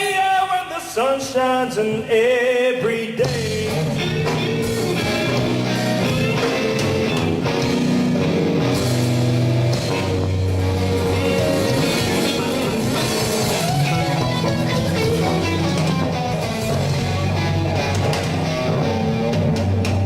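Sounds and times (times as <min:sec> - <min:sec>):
person singing: 0:00.0 - 0:06.4
blues band playing: 0:03.2 - 0:20.0
electric guitar: 0:03.2 - 0:20.0.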